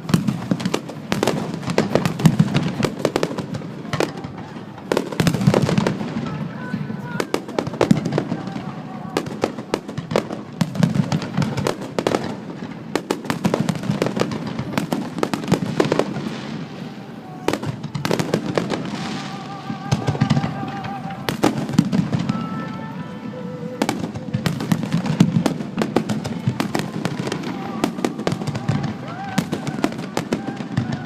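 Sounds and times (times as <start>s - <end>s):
fireworks bursting: 0.0s - 31.0s
fireworks crackling: 0.0s - 31.0s.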